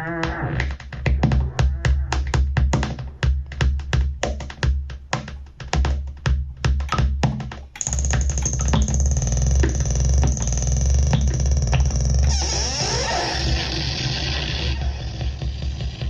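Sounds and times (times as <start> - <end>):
synthesizer percussive hits: 0.6 - 12.4
dense synth drone with whine: 7.9 - 16.0
low pulsing bass: 7.9 - 16.0.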